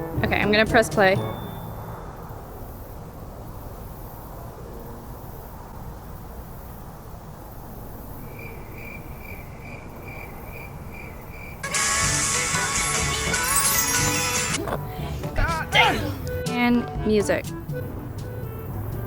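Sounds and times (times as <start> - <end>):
low outdoor background rumble: 0.0 - 13.4
faint repeating chirp: 1.2 - 2.9
loud music: 11.6 - 17.1.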